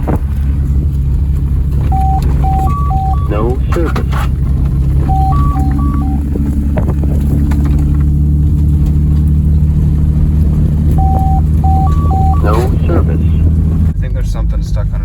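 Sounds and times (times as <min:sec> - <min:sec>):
car running on dirt trail: 0:00.0 - 0:15.0
two-tone beeps: 0:01.9 - 0:04.2, 0:05.0 - 0:06.2, 0:11.0 - 0:13.4.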